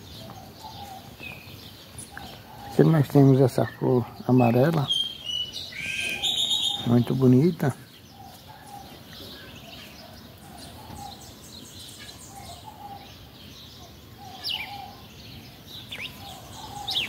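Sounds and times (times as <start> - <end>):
high bird chirps: 3.6 - 17.0.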